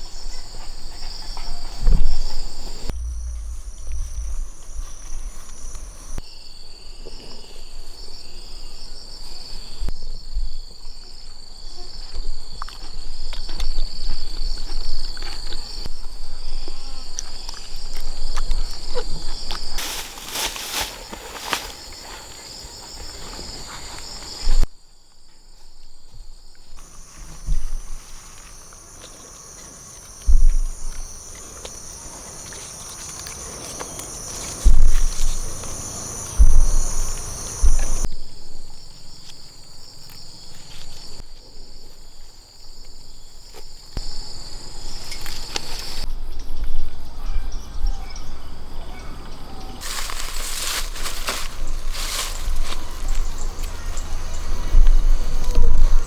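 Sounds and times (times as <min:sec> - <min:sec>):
insects trilling: 0:00.0 - 0:56.0
crackling burst: 0:02.8 - 0:06.2.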